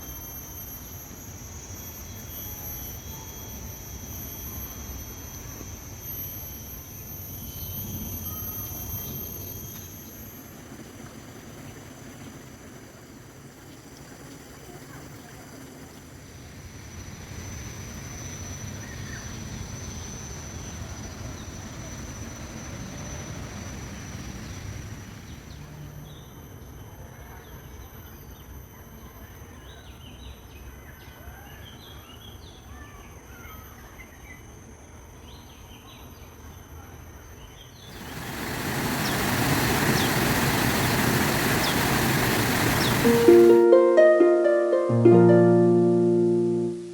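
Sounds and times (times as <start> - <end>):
thin high whine: 0.0 - 13.4, 36.4 - 46.9
faint bird chirps: 7.2 - 10.6.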